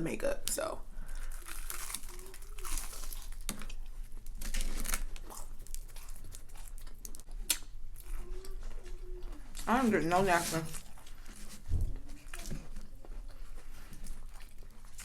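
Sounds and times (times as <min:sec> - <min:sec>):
crunching crispy food: 0:01.0 - 0:08.6.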